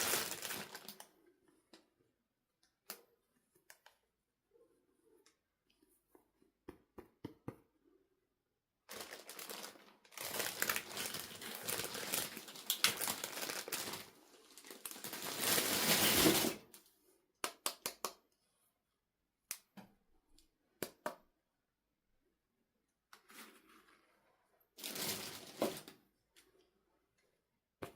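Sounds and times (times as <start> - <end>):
packaging crinkling and tearing: 0.0 - 1.0, 8.9 - 16.7, 24.8 - 26.0.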